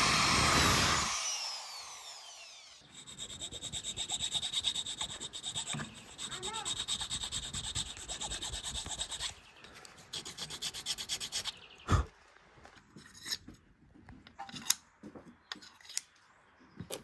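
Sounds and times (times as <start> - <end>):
hand file rasping: 2.8 - 9.4, 10.0 - 11.7.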